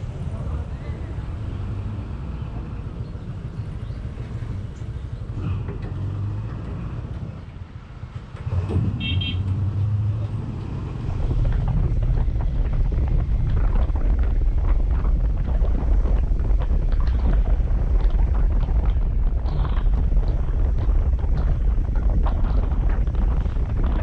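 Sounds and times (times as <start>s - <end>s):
wind buffeting microphone: 0.0s - 24.0s
motorcycle engine running: 0.1s - 5.7s, 11.1s - 24.0s.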